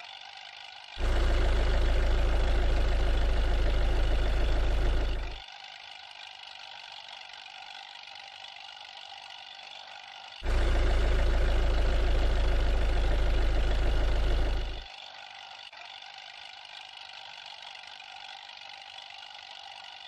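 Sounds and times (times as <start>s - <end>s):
truck engine deep rumbling: 10.5s - 14.8s.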